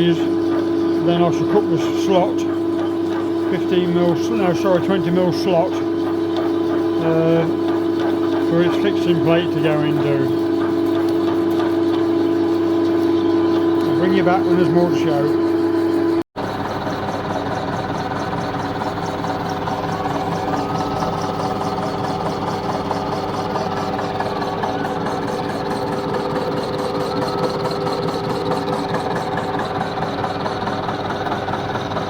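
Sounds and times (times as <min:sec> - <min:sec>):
milling machine cutting metal: 0:00.0 - 0:32.0.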